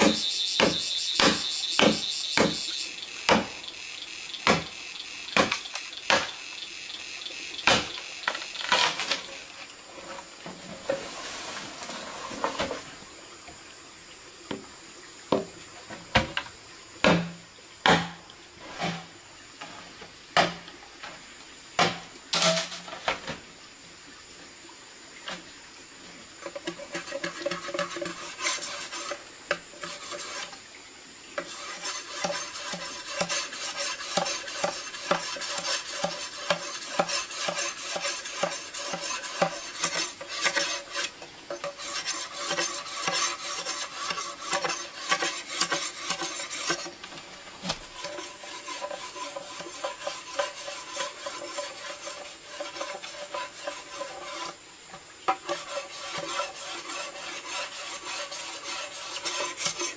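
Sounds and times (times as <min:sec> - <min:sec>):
metal utensil scraping metal pot: 0:26.4 - 0:30.6, 0:31.4 - 0:47.0, 0:47.7 - 0:54.6, 0:55.3 - 0:59.9.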